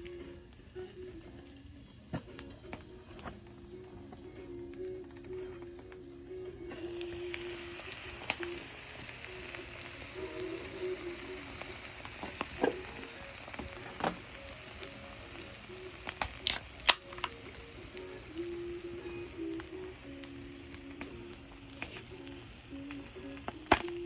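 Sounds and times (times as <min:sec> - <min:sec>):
food sizzling in a frying pan: 0:06.6 - 0:24.0.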